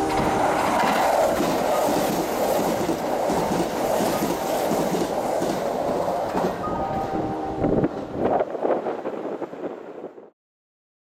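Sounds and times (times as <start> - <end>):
wheels clattering over rail joints: 0.0 - 7.2
electric train passing: 0.0 - 10.2.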